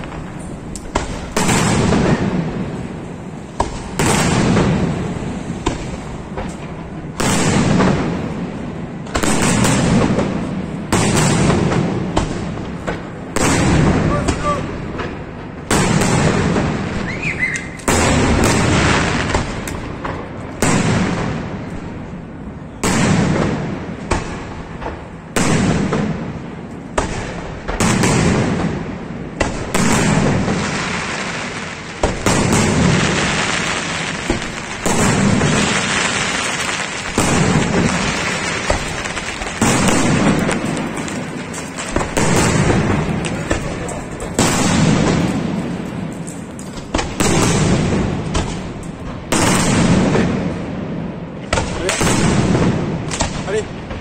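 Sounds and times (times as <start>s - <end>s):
sharp firework crack: 0.0s - 54.0s
firework shells bursting: 24.8s - 50.6s.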